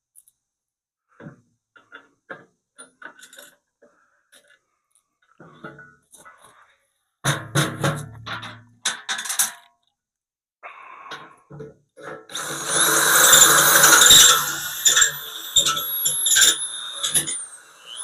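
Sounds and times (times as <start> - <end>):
electric drill boring through metal: 12.3 - 18.0.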